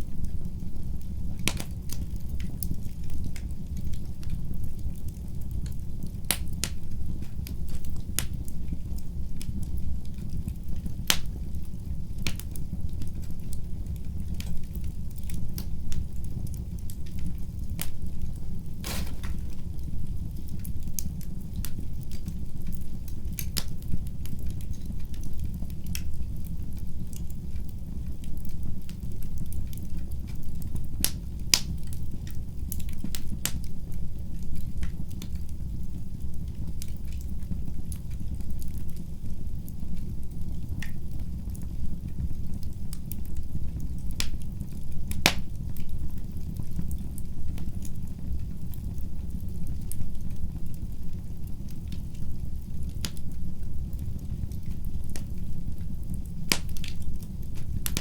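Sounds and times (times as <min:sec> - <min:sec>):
fire crackling and popping: 0:00.0 - 0:58.0
low rumble of flames: 0:00.0 - 0:58.0.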